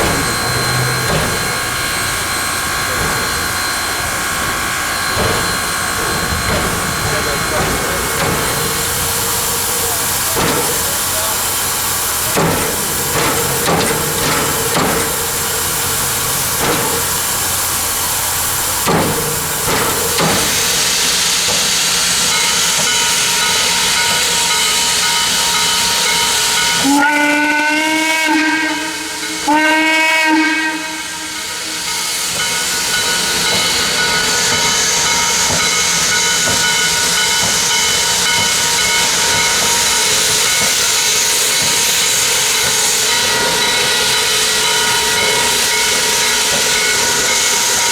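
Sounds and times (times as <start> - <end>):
locomotive hissing steam: 0.0 - 47.9
steam whistle blasts: 25.8 - 31.8.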